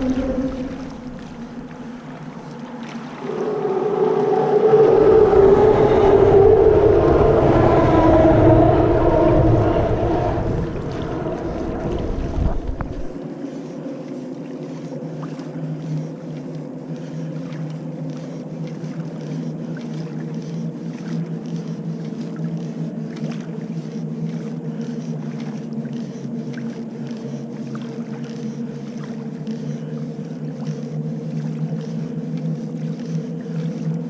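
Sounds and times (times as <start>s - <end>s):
small water splashes: 0.0s - 4.7s
heavy low rumble: 0.0s - 13.2s
boat motor hum: 0.0s - 34.0s.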